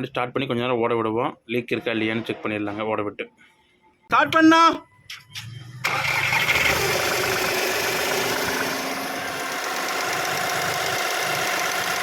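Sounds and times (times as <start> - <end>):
car engine starting and idling: 5.4 - 12.0.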